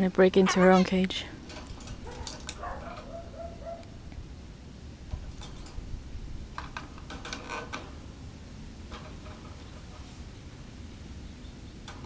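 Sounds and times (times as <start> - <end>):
bird clicking on wire cage: 1.4 - 3.9.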